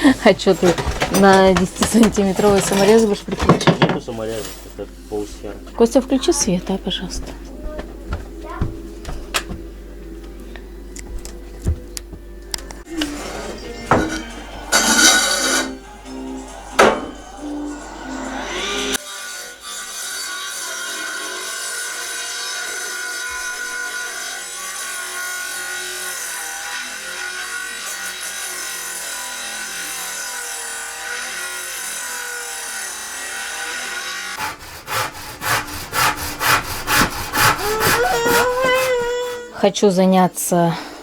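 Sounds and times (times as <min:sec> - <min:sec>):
saw rasping through board: 0:13.1 - 0:15.8, 0:18.4 - 0:39.5.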